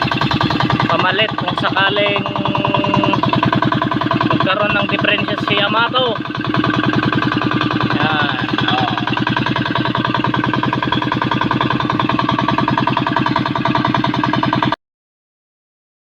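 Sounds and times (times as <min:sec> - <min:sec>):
single-cylinder diesel engine running: 0:00.0 - 0:14.8.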